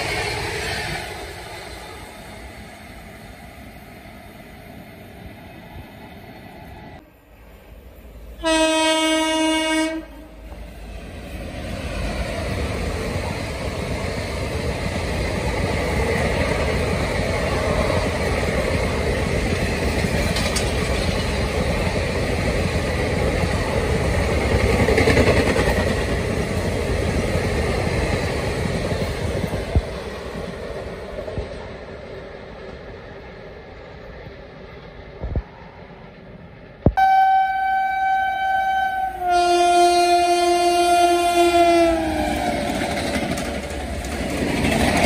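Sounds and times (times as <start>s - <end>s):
train horn blast: 8.4s - 10.4s, 37.0s - 42.4s
train wheels clattering on rails: 11.8s - 31.7s, 42.2s - 45.0s.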